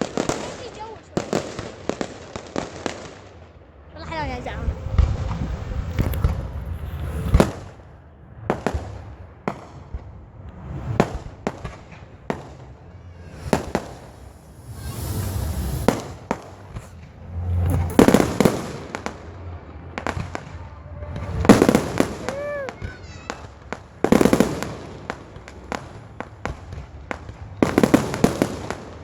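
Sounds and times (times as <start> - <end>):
firework crackling: 0.0 - 29.0
fireworks bangs: 0.0 - 29.0
firework hissing rush: 4.2 - 7.9, 10.3 - 29.0.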